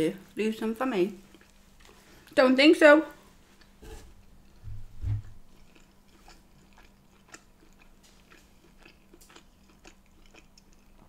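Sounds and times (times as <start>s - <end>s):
chewing food: 1.1s - 2.4s, 3.1s - 11.0s.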